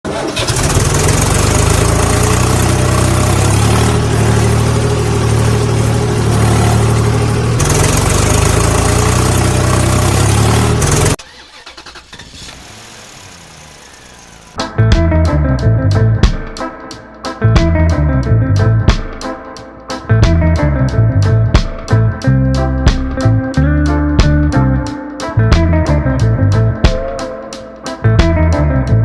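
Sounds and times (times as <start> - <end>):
engine droning: 0.1 - 16.1.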